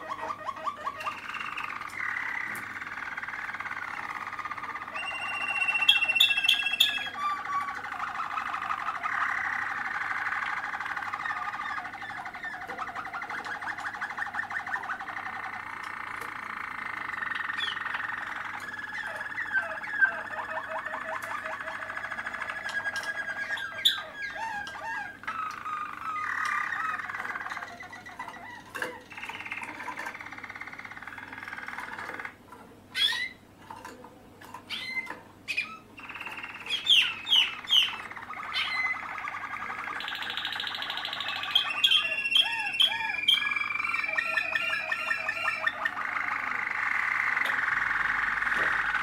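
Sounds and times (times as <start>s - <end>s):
canaries singing trills: 0.0s - 49.0s
sharp bird chirps: 0.9s - 24.4s, 34.7s - 49.0s.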